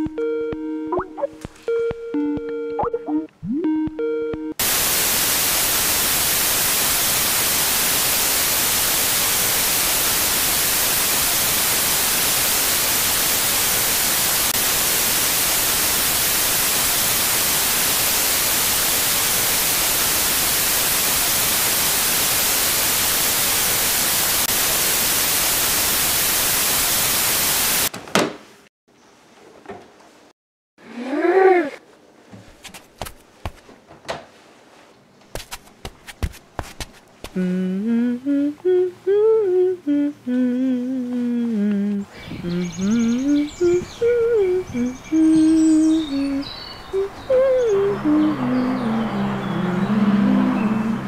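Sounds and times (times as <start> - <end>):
white noise static hiss: 4.6 - 27.9, 34.4 - 49.0.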